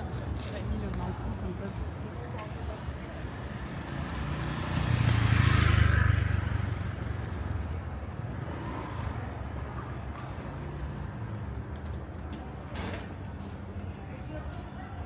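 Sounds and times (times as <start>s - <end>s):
steady street hum: 0.0s - 15.0s
vehicle driving past: 3.2s - 9.6s.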